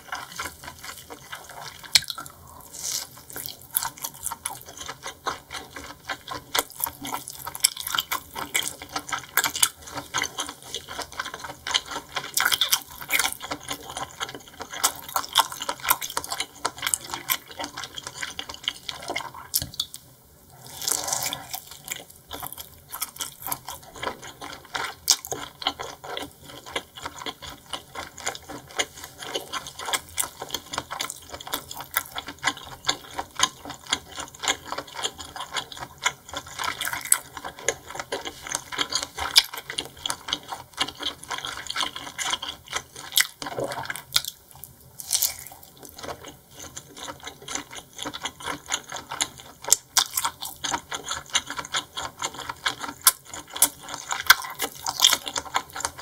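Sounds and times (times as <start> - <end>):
wet chewing clicks and smacks: 0.0 - 2.4, 21.9 - 56.0.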